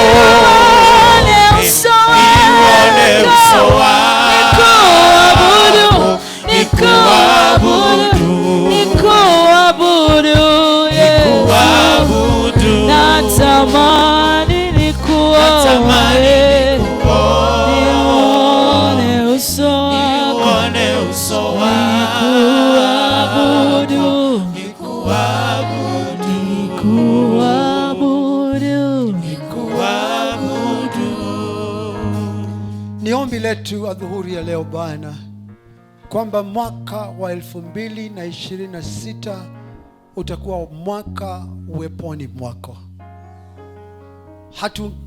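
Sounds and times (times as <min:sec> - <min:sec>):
voices singing gospel: 0:00.0 - 0:33.2
keyboard and bass accompaniment: 0:00.0 - 0:45.0.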